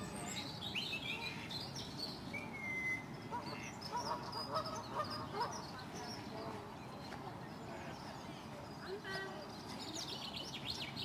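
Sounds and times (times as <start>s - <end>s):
birds chirping and peeping: 0.0s - 11.0s.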